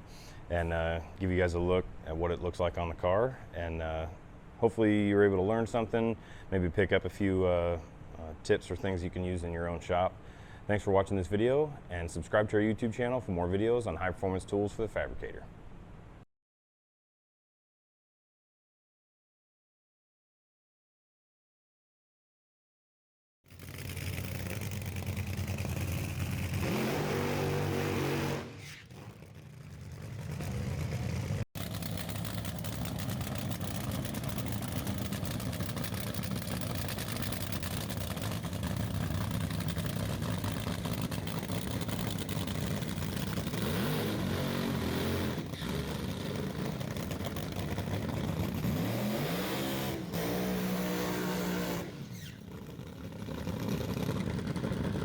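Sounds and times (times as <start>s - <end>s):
dragster engine running rough: 23.5s - 55.0s.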